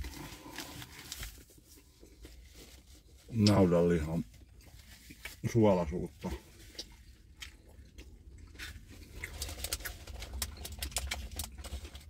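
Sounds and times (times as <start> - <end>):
person chewing: 6.4 - 12.0.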